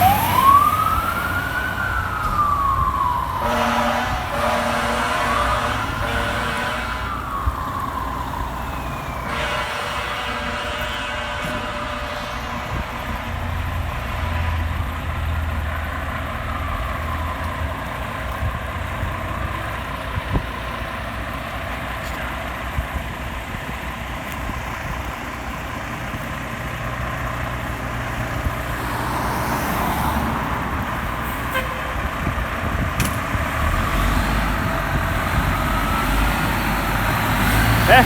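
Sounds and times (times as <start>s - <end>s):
distant siren: 0.0s - 14.8s, 15.4s - 21.2s, 25.0s - 38.0s
heavy vehicle engine rumbling: 0.0s - 38.0s
vehicle passing: 28.6s - 31.3s, 33.4s - 38.0s.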